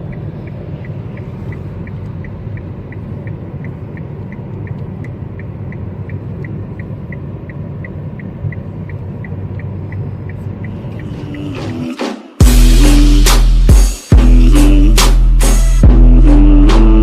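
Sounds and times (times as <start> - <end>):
indicator ticking: 0.0 - 11.8
car road and engine rumble: 0.0 - 17.0.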